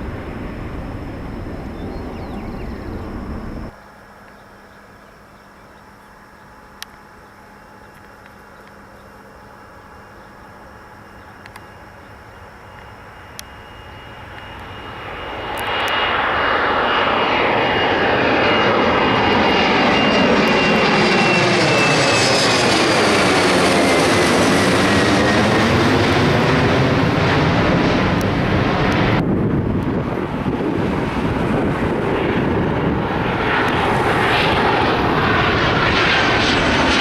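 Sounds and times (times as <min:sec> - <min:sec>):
jet airliner passing: 0:00.0 - 0:07.8, 0:08.7 - 0:37.0
high whine falling in pitch: 0:00.0 - 0:26.0.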